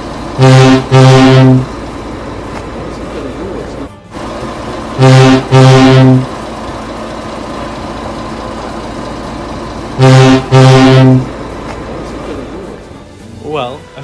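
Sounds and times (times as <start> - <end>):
deep locomotive horn blasts: 0.0 - 2.4, 4.1 - 6.9, 9.7 - 12.9.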